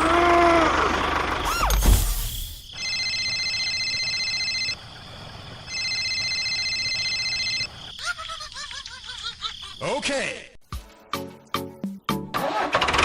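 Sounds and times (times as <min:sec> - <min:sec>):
electronic ringing tone: 0:02.7 - 0:04.8, 0:05.7 - 0:07.7.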